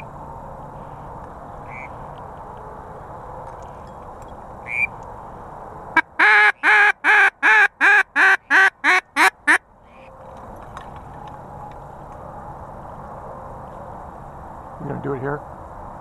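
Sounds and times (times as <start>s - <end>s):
duck call quacking: 6.0s - 9.6s.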